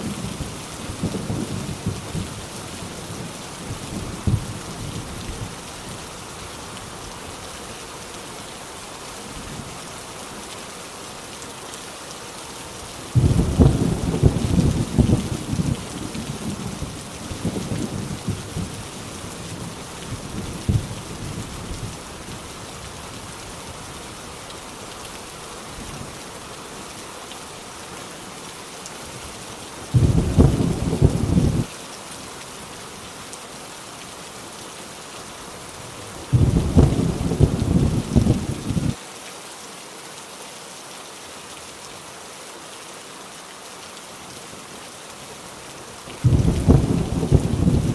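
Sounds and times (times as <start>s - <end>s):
heavy rain on a tin roof: 0.0s - 47.9s
thunder: 13.2s - 15.6s, 30.0s - 31.7s, 36.3s - 39.0s, 46.2s - 47.9s.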